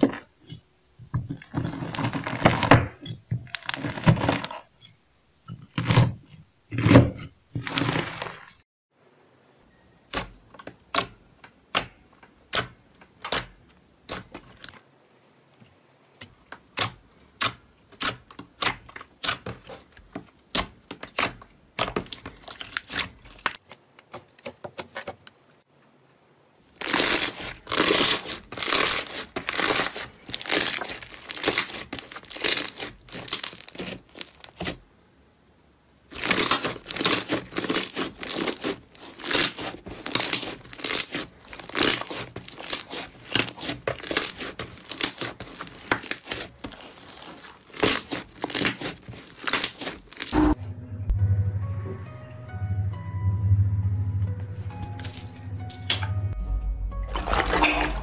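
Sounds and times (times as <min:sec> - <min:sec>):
slime popping and crackling: 0:16.8 - 0:23.6, 0:26.8 - 0:34.8, 0:36.1 - 0:50.4.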